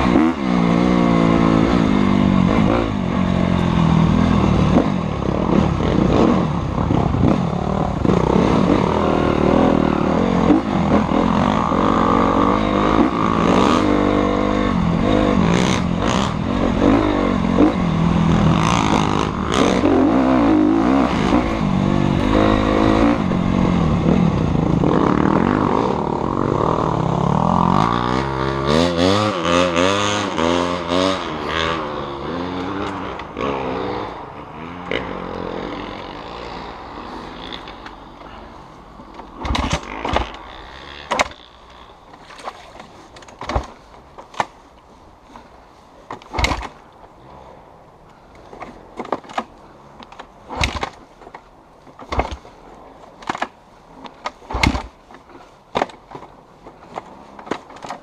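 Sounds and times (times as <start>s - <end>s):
dirt bike engines revving: 0.0s - 44.5s.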